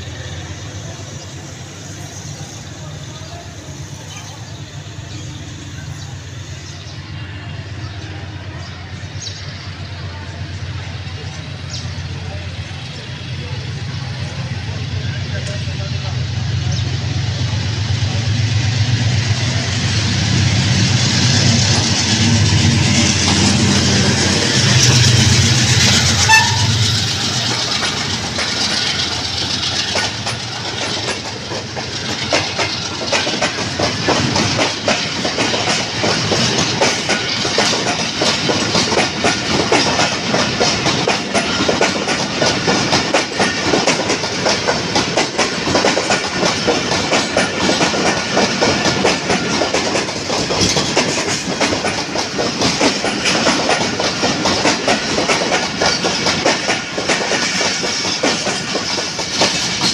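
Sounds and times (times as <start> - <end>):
diesel locomotive running: 0.0 - 59.9
train wheels clattering over rail joints: 19.3 - 59.9.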